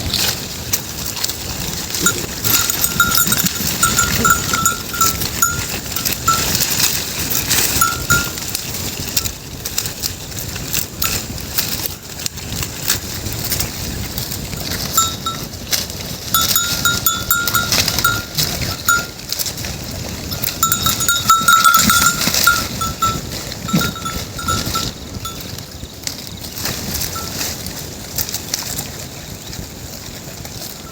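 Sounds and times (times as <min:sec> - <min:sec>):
rough background noise: 0:00.0 - 0:29.6
goat bells clinking: 0:01.1 - 0:12.2, 0:14.3 - 0:28.6.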